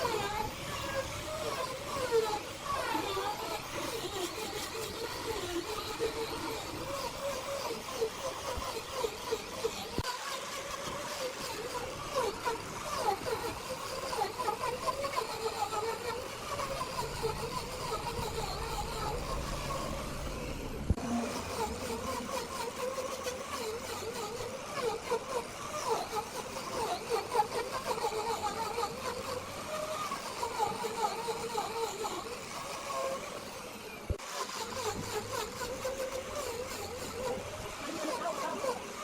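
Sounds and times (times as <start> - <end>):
machinery drone with whine: 11.0 - 22.8.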